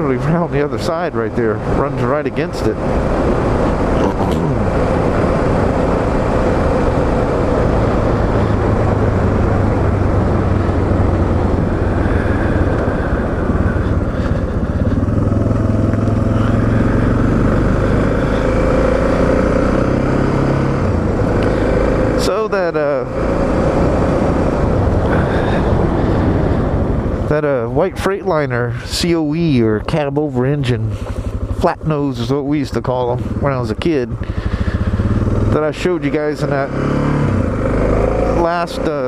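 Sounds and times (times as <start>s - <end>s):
motorcycle engine running: 0.0s - 28.2s, 29.3s - 39.0s.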